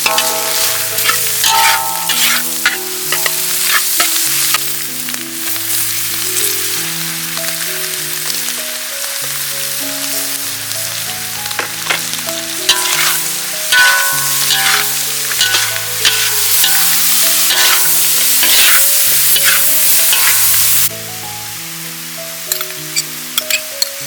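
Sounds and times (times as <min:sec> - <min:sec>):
spatula scraping pan: 0:00.0 - 0:04.6, 0:11.6 - 0:20.9
food sizzling in a pan: 0:00.0 - 0:24.0.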